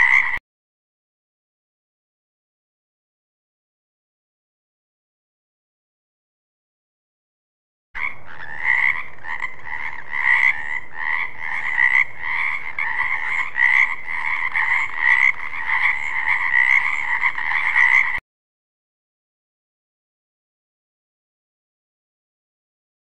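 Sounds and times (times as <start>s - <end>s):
frogs croaking: 0.0s - 0.4s, 8.0s - 18.2s.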